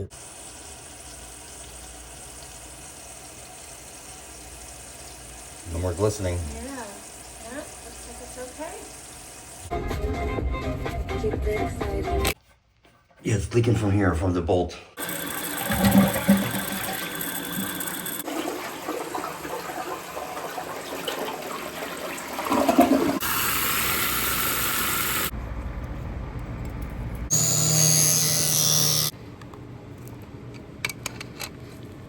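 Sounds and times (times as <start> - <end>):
toilet flushing water rushing: 15.0 - 25.3.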